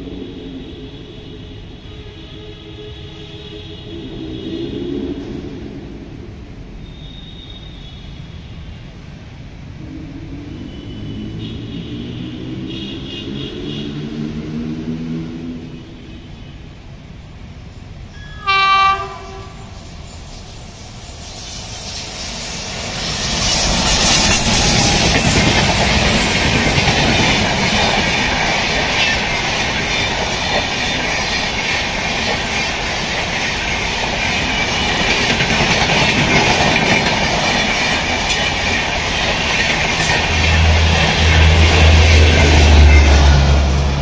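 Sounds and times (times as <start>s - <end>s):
train passing at speed: 0.0s - 44.0s
wheels clattering over rails: 22.9s - 44.0s.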